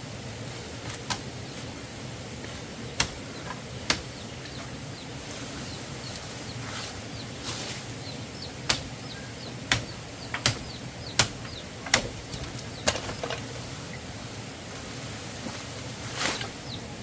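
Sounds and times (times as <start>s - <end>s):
sharp knocks or chops: 9.7s - 13.1s.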